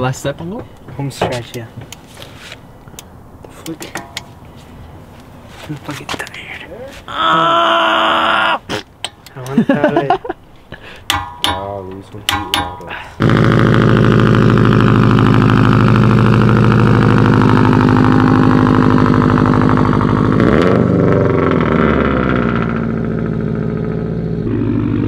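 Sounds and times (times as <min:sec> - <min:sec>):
car engine idling: 0:11.1 - 0:25.0.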